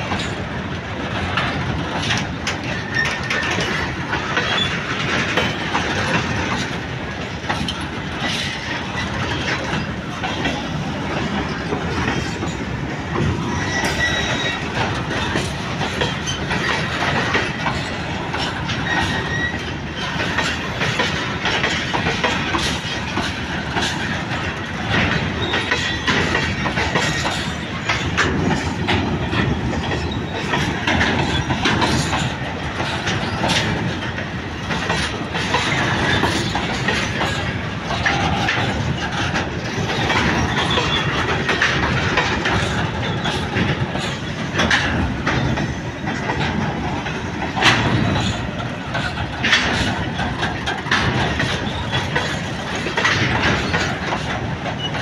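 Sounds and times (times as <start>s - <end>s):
train wheels clattering over rails: 0.0s - 55.0s
faint high wheel squeals: 13.5s - 14.7s, 18.8s - 20.2s.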